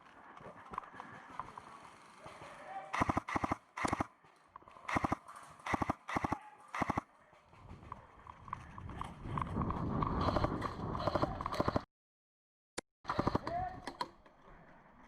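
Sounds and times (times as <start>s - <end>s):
airsoft gun full-auto bursts: 3.0s - 4.1s, 4.9s - 7.0s, 13.1s - 13.5s.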